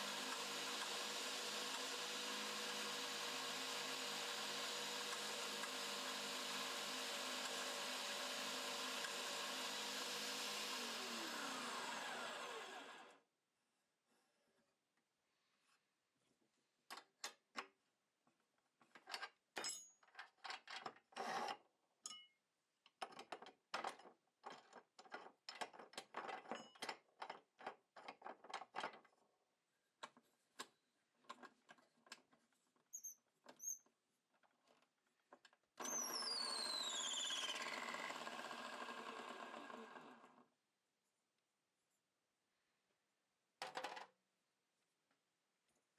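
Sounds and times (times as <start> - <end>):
electric drill whining: 0.0 - 13.2, 35.8 - 39.8.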